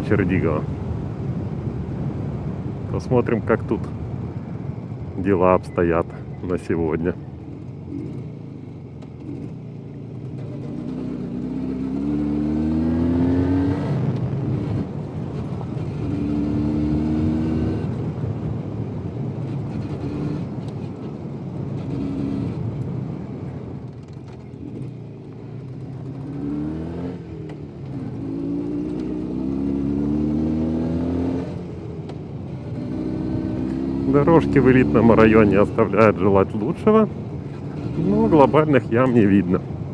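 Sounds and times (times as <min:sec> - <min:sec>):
two-stroke motorcycle engine accelerating: 0:07.6 - 0:18.1, 0:21.8 - 0:22.9, 0:24.0 - 0:35.8, 0:36.6 - 0:39.2.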